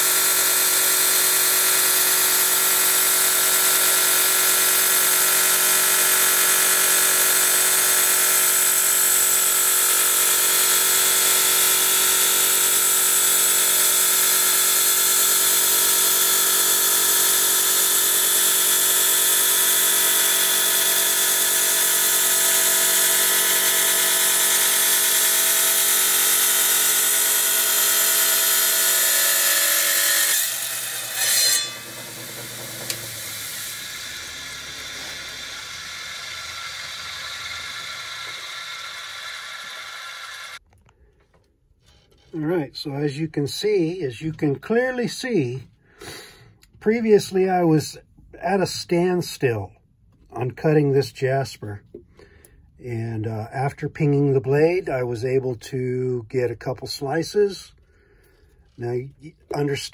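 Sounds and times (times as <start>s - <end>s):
tile saw motor whine: 0.0s - 40.6s
blade grinding through stone: 15.0s - 40.6s.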